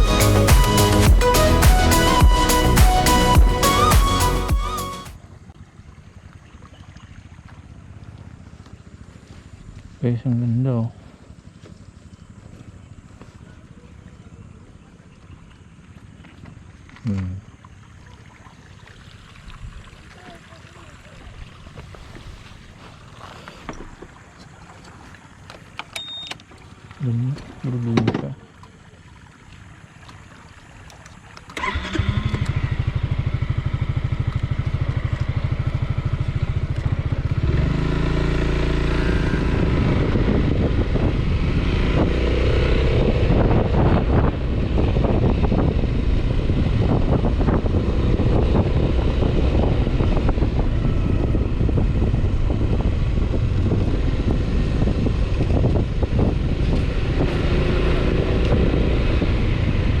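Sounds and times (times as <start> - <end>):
scooter engine idling and revving: 7.7 - 13.2, 31.6 - 60.0.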